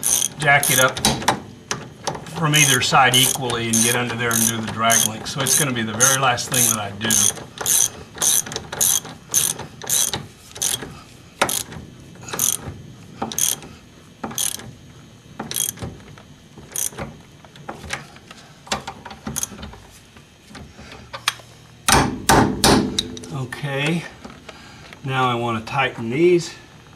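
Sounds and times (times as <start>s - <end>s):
ratchet wrench clicking: 0.0s - 1.0s, 2.5s - 11.7s, 12.3s - 12.6s, 13.3s - 13.6s, 14.3s - 14.6s, 15.5s - 15.8s, 16.7s - 17.0s, 19.3s - 19.6s.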